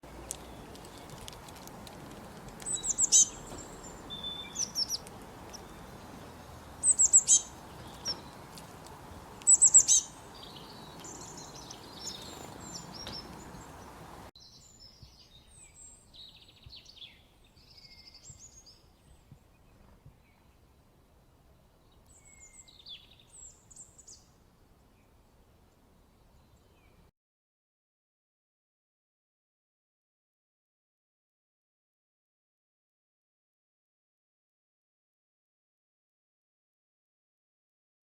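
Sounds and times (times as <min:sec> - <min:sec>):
songbird chirping: 0:00.0 - 0:27.1
steady outdoor hiss: 0:00.0 - 0:27.1.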